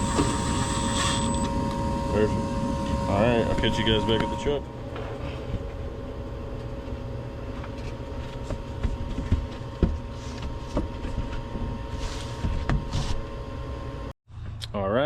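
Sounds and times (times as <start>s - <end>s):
steady tones: 0.0s - 5.0s
mechanical hum: 0.0s - 14.7s.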